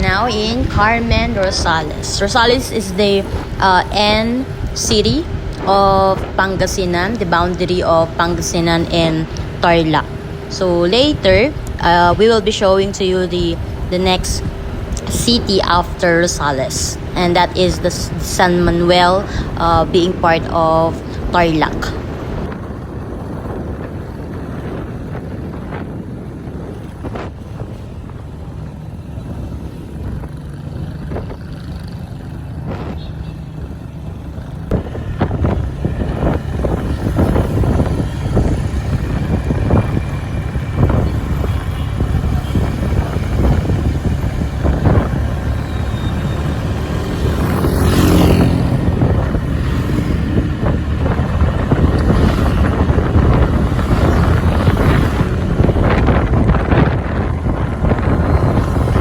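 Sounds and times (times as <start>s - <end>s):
road noise: 0.0s - 59.0s
scooter engine: 0.0s - 59.0s
wind buffeting microphone: 0.0s - 59.0s.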